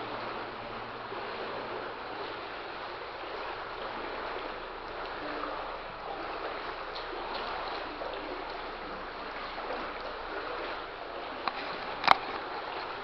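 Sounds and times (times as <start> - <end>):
legs wading through water: 0.0 - 13.0.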